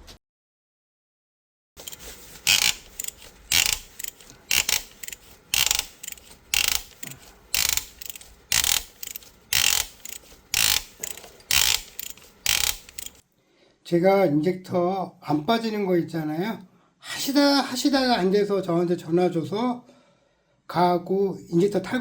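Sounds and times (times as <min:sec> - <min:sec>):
ratchet wrench clicking: 0:01.8 - 0:13.2.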